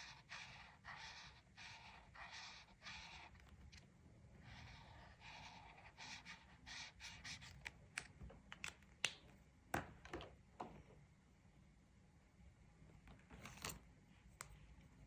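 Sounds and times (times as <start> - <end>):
colouring tool scratching paper: 0.0 - 3.8, 4.4 - 7.6.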